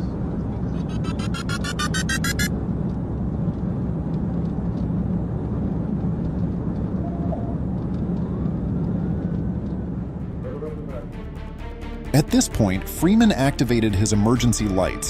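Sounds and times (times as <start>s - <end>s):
car engine rumble: 0.0s - 11.3s
road noise: 0.0s - 14.6s.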